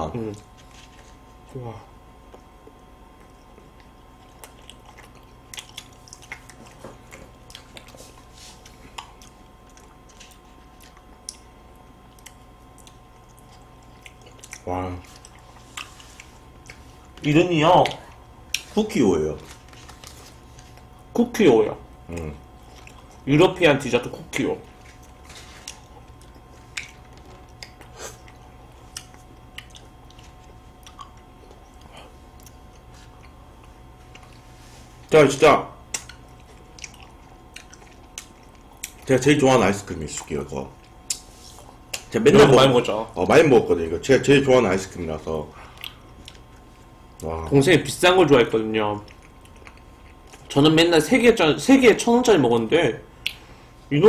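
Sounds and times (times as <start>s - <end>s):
wet chewing and lip-smacking: 2.2s - 18.8s, 22.0s - 23.3s, 24.2s - 35.1s, 35.8s - 39.2s, 40.1s - 42.5s, 45.7s - 47.3s, 49.0s - 50.6s.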